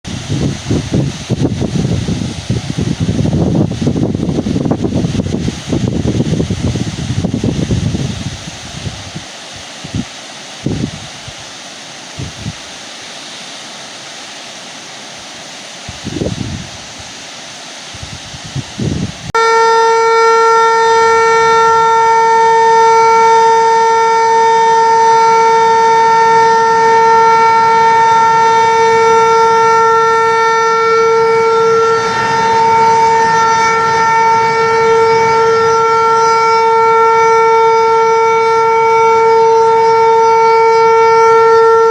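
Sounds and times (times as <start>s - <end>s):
wind buffeting microphone: 0.1s - 11.5s, 12.2s - 12.6s, 15.9s - 17.1s, 17.9s - 19.4s, 24.2s - 41.9s
warning siren steady tone: 19.4s - 41.9s.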